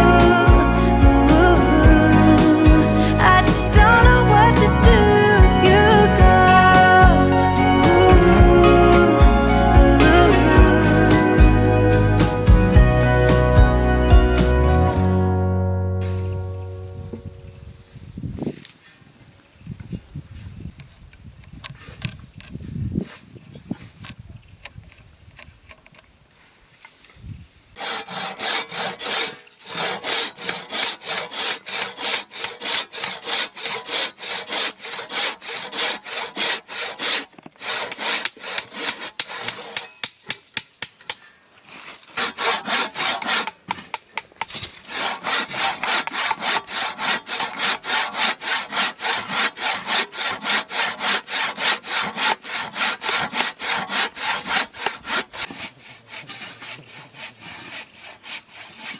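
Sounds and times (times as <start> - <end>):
handsaw cutting wood: 0.0 - 15.0, 27.8 - 39.9, 41.6 - 58.9.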